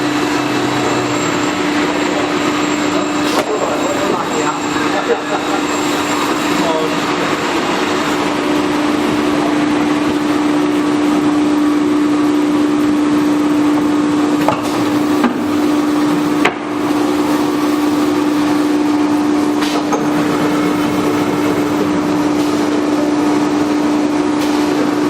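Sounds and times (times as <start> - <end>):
router spindle running: 20.0 - 23.0.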